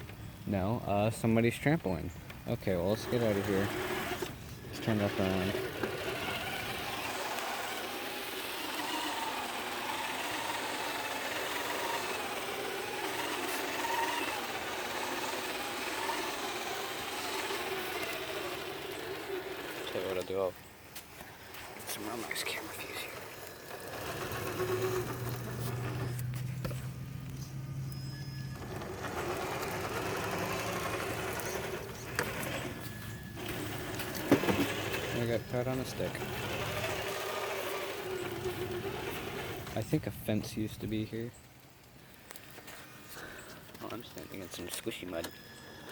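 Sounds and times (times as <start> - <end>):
electric motor and drivetrain whining: 0.9 - 45.9.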